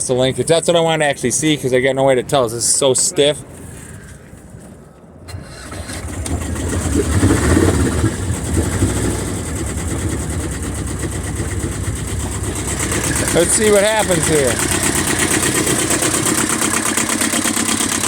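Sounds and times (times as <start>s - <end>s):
boat engine starting: 5.3s - 18.0s.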